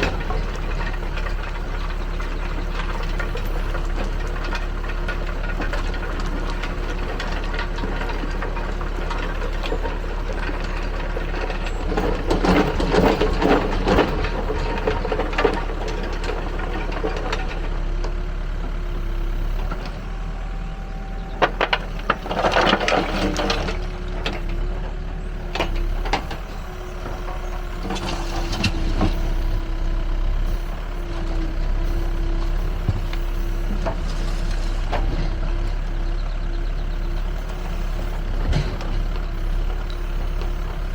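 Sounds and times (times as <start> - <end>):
backhoe diesel engine running: 0.0 - 40.9
clattering and rattling: 21.4 - 36.0.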